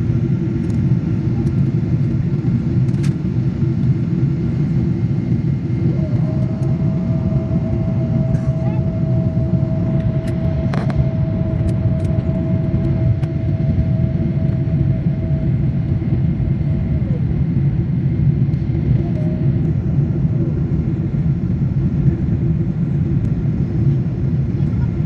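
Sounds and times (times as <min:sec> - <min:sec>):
faint steady whine: 0:00.0 - 0:25.0
vehicle rumble inside cabin: 0:04.9 - 0:17.2.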